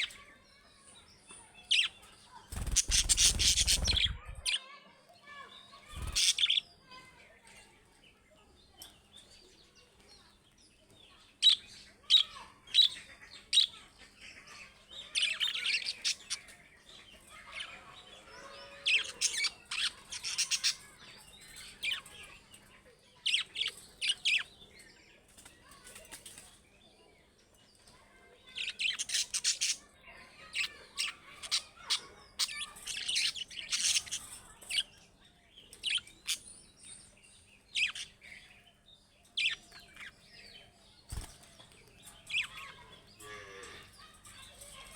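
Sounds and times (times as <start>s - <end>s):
budgerigars chirping: 2.6s - 4.5s, 18.7s - 20.8s, 30.5s - 34.3s.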